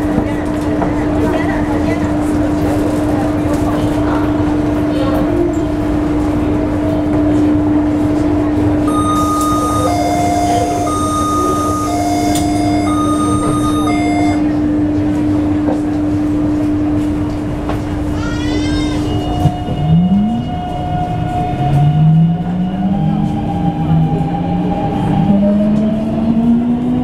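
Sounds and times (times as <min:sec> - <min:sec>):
train rumbling: 0:00.0 - 0:27.0
electronic two-tone signal: 0:08.9 - 0:14.5.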